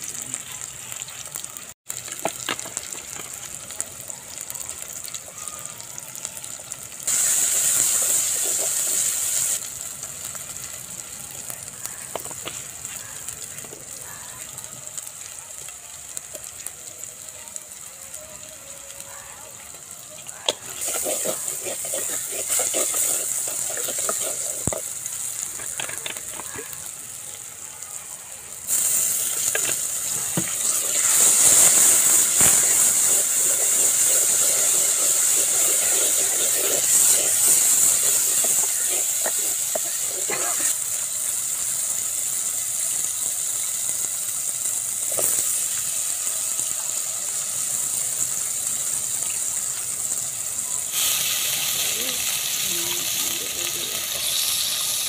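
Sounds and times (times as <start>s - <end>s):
onions sizzling in hot oil: 0.0s - 55.0s
wooden spoon scraping pot: 20.6s - 24.9s, 32.6s - 40.8s.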